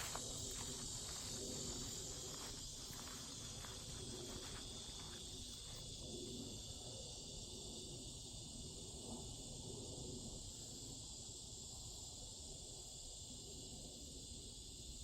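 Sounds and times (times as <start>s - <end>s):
footsteps rustling through leaves: 0.0s - 5.8s
cicadas buzzing: 0.0s - 12.2s.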